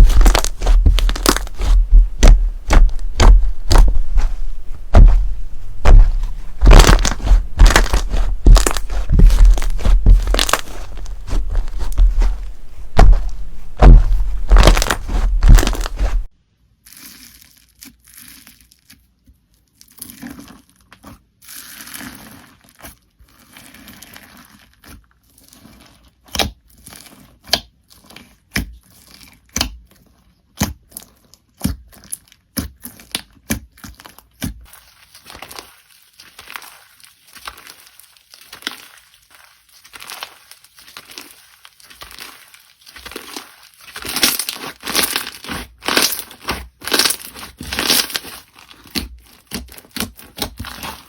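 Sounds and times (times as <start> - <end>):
sharp slime pops: 0.0 - 4.3
slime crunching and crackling: 0.0 - 16.3, 21.8 - 51.0.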